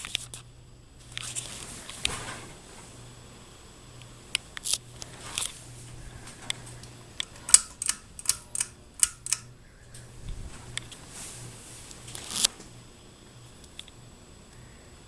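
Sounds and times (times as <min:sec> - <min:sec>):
ceiling fan motor hum: 0:00.0 - 0:15.0
sharp clicks and rattles: 0:07.2 - 0:09.6.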